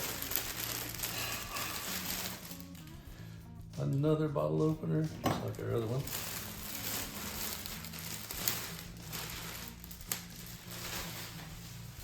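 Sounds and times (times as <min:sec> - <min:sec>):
packaging crinkling and rustling: 0:00.0 - 0:03.0, 0:05.4 - 0:12.0.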